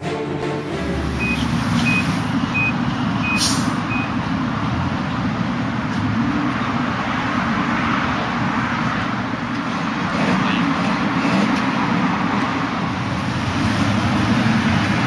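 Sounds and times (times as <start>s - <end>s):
vehicle engine and road rumble: 0.0s - 15.0s
back-up beeper: 1.2s - 4.2s.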